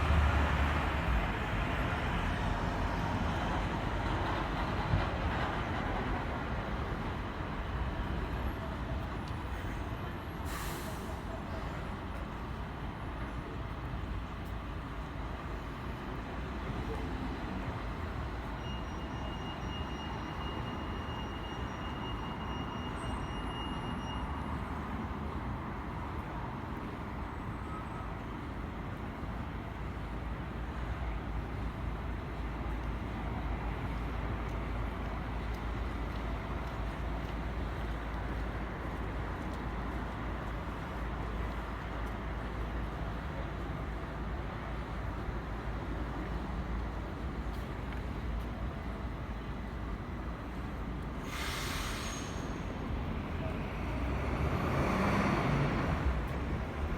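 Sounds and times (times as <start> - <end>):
passing traffic rumble: 0.0 - 10.2, 28.4 - 56.9.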